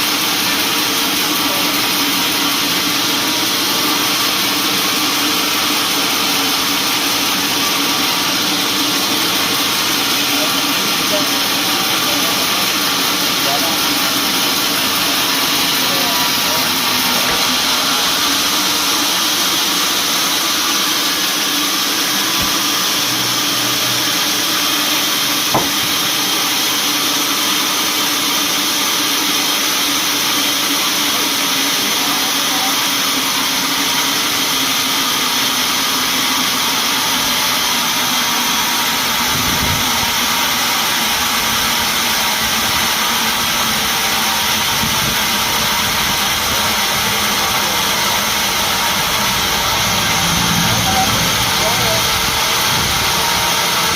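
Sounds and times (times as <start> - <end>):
sawmill machinery running: 0.0 - 53.9
sharp knock: 25.5 - 25.9.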